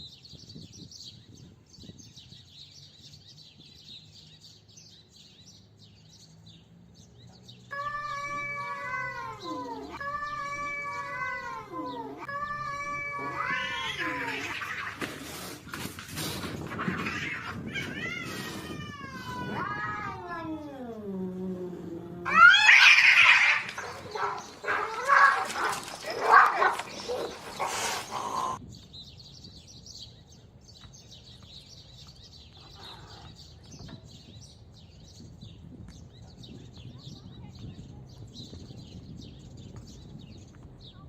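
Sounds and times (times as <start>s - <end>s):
cat caterwaul: 7.7s - 15.0s, 16.7s - 26.9s
cats screeching and yowling: 7.7s - 28.6s.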